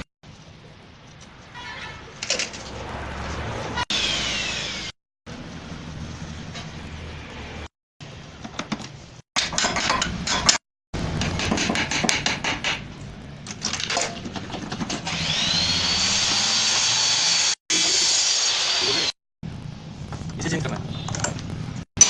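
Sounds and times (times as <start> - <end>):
metal tools knocking and scraping: 9.4 - 10.6
motor whine: 15.2 - 19.2.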